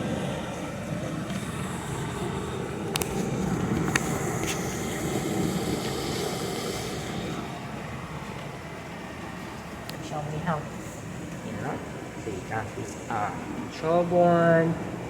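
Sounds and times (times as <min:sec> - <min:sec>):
appliance mechanical whir: 0:00.0 - 0:13.8.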